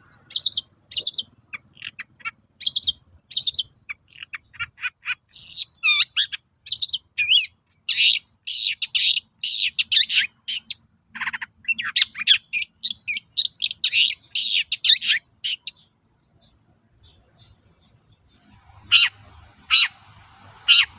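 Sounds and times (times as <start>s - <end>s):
bird chirps and gliding whistles: 0.0s - 20.9s.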